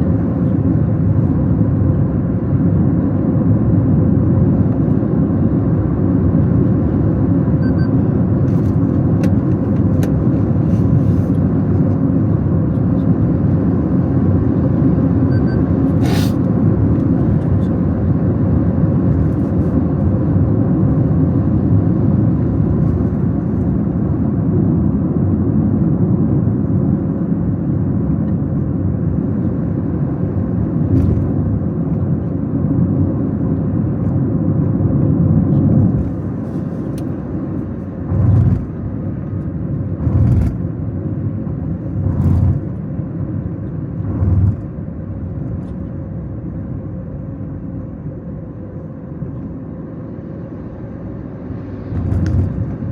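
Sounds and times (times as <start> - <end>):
car engine and road rumble: 0.0 - 52.9.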